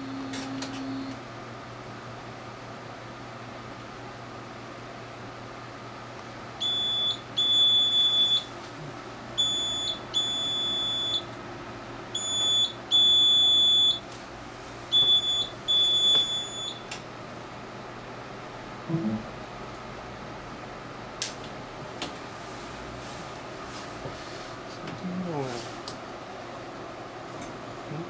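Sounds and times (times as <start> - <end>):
steady printer hum: 0.0 - 3.2.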